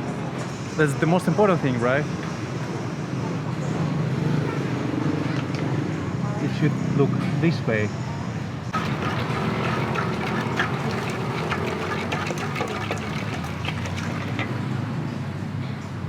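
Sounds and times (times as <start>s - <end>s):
kitchen clinks and clatters: 8.8s - 14.6s.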